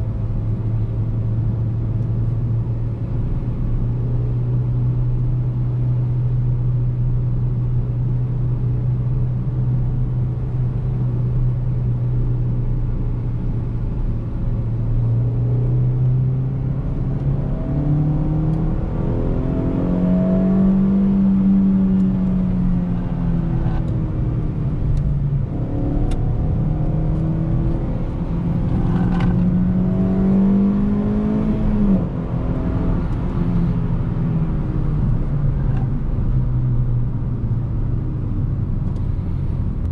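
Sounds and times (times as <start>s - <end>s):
road noise: 0.0s - 39.9s
car engine accelerating: 13.4s - 39.9s.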